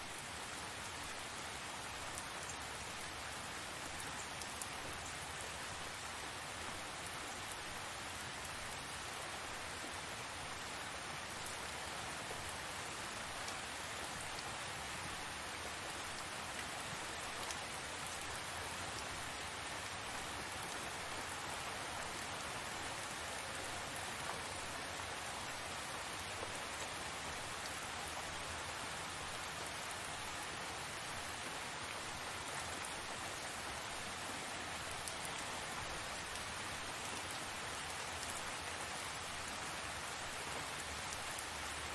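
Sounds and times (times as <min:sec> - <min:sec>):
steady rain pattering: 0:00.0 - 0:41.9.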